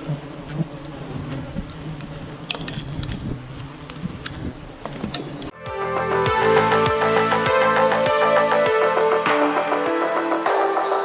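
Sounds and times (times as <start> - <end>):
honey bees buzzing: 0.0 - 2.6
music: 5.5 - 11.0.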